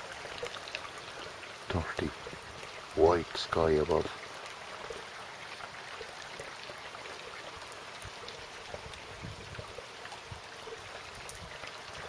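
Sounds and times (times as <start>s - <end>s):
heavy rain: 0.0s - 5.8s
faint drips and patters: 0.0s - 12.0s.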